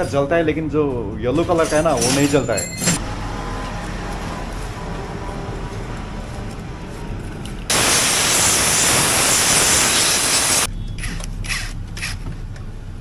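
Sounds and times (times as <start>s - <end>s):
water jet spraying hiss: 7.7s - 10.7s.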